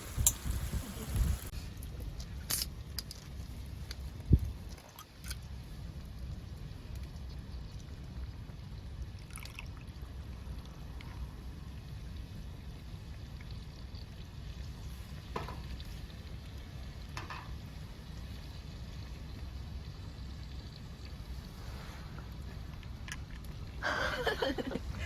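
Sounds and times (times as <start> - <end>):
wood fire crackling: 0.0 - 4.8, 9.9 - 25.0.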